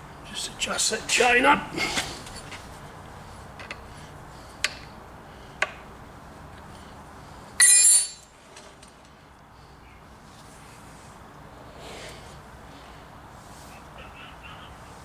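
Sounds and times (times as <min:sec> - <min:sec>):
ringing metallic clink: 0:07.6 - 0:08.3.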